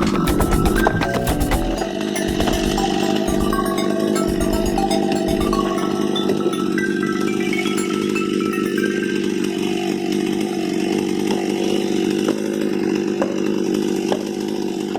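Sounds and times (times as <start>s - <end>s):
chainsaw sawing log: 9.5s - 14.9s.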